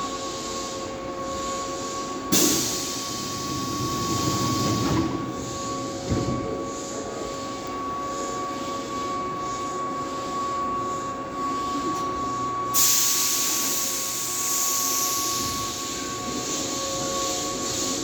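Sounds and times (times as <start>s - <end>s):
electric train whine: 0.0s - 18.0s
loud hiss: 2.3s - 4.6s, 12.8s - 16.8s.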